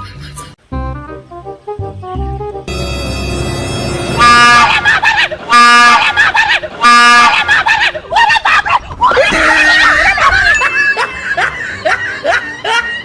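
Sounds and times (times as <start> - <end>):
person laughing: 4.5 - 13.0.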